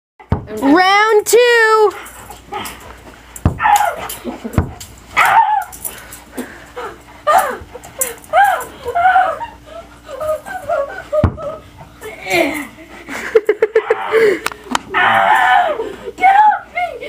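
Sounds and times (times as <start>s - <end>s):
dog yipping and whining: 5.2s - 5.8s.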